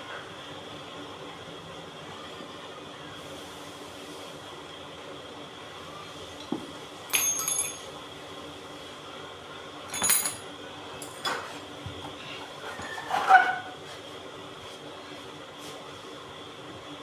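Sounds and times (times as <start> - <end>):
metal parts clinking: 7.1 - 7.9, 9.9 - 10.4.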